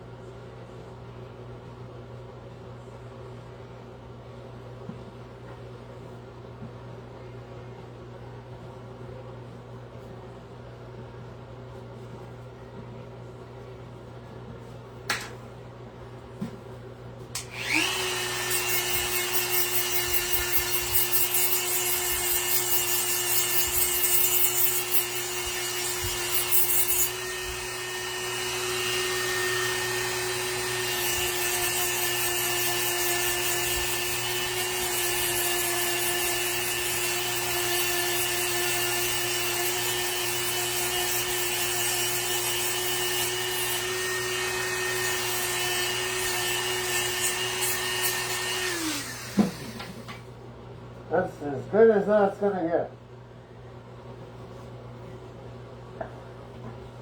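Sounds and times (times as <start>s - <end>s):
electric power tool running: 17.4s - 50.2s
tool scratching wood: 17.6s - 50.1s.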